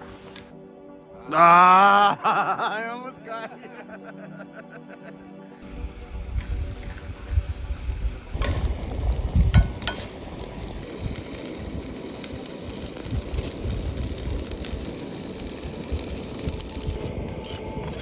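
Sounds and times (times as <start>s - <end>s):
food sizzling in a pan: 5.6s - 18.0s.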